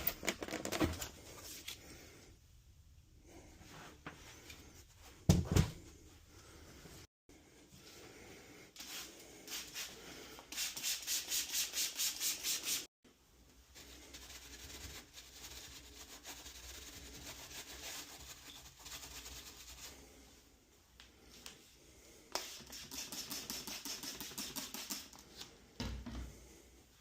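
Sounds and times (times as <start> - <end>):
brush scrubbing: 13.7 - 20.3.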